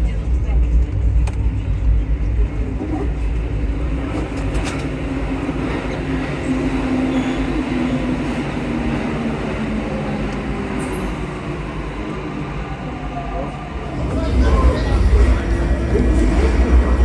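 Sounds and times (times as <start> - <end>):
metro train rumble in tunnel: 0.0 - 17.0
held hum: 14.0 - 17.0.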